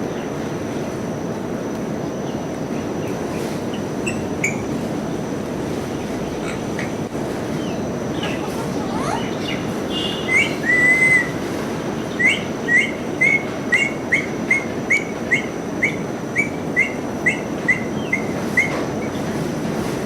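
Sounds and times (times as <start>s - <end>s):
parrot drawn-out whistle: 10.0s - 11.4s.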